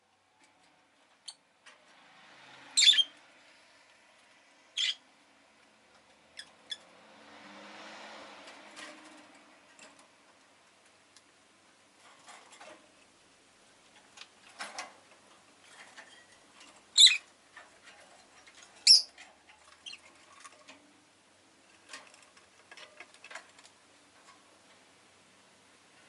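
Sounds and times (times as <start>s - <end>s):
light clicks and scratching: 0.3s - 2.1s, 8.4s - 11.4s, 12.0s - 13.2s, 13.8s - 24.9s
lovebird shrill chirps: 2.8s - 3.1s, 4.8s - 5.0s, 17.0s - 17.2s, 18.8s - 19.1s.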